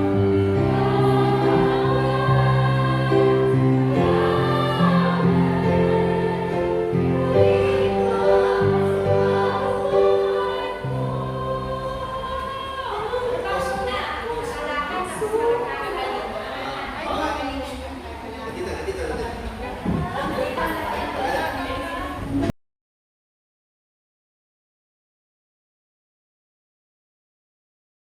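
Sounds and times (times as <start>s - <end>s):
choir singing slowly: 0.0s - 14.4s.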